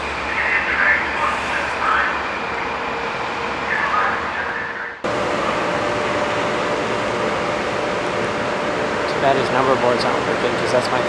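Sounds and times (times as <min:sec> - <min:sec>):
electric locomotive humming: 0:00.0 - 0:11.0
electric train rumbling: 0:00.0 - 0:11.0.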